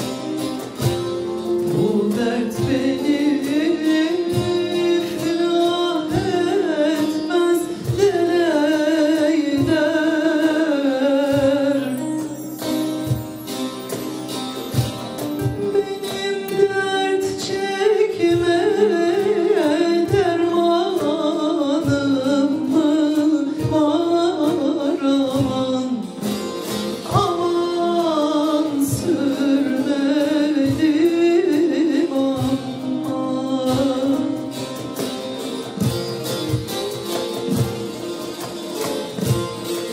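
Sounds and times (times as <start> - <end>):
hand drum beats: 0.0 - 39.9
plucked saz: 0.0 - 39.9
person singing ornamented melody: 1.5 - 13.1, 15.4 - 26.2.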